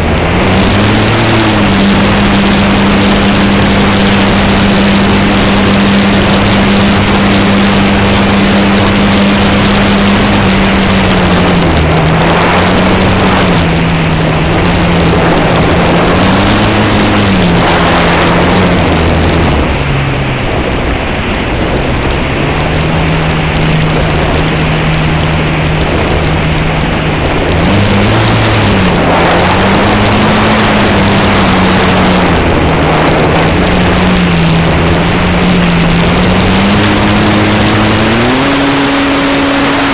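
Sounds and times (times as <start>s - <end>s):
electric motor and propeller hum: 0.0s - 39.9s
wind rush: 0.0s - 39.9s.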